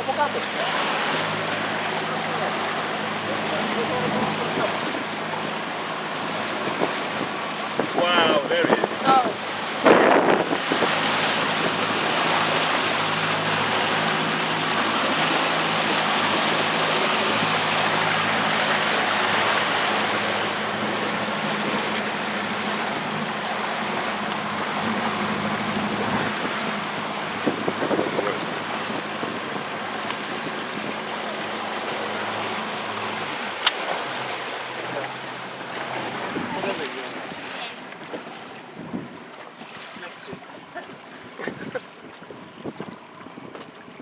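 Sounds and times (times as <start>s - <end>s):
water rushing: 0.0s - 43.4s
motor boat engine running: 0.0s - 44.0s
wind on microphone: 6.3s - 22.0s, 24.6s - 31.2s, 34.7s - 44.0s.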